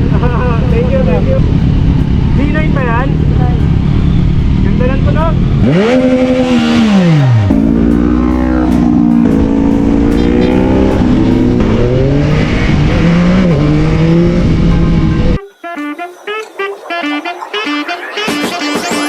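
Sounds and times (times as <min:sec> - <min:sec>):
motorcycle engine revving: 0:00.0 - 0:15.4.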